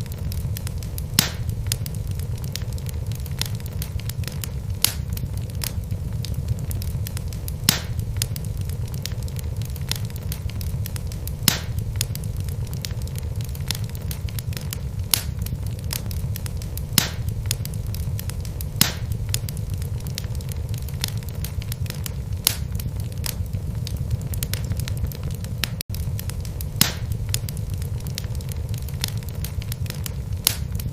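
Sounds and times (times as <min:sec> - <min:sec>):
sharp pops of burning logs: 0:00.0 - 0:30.9
wood fire crackling: 0:00.0 - 0:30.9.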